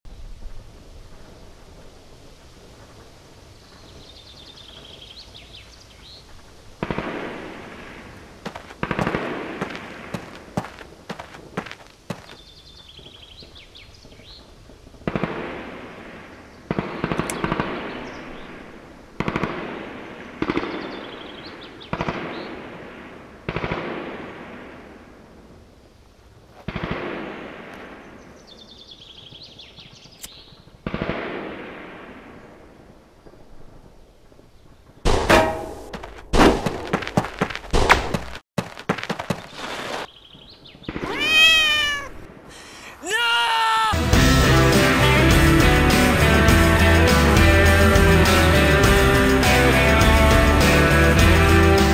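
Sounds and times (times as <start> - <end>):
rapid gunfire: 6.8 - 8.0, 8.8 - 10.5, 16.7 - 18.2, 19.2 - 20.9, 30.8 - 32.2
echoing single gunshots: 6.8 - 10.6, 15.0 - 25.2, 26.6 - 28.6, 30.3 - 33.4
cat meowing: 41.0 - 42.3.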